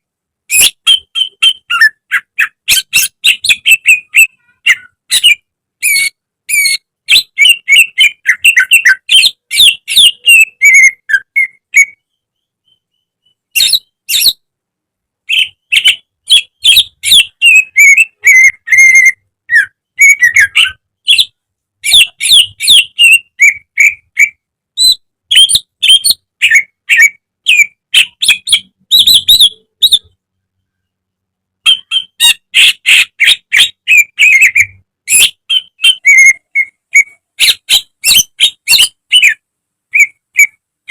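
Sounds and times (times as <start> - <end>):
bird singing chirps and whistles: 0.5 - 14.4, 15.3 - 30.2, 31.6 - 40.9.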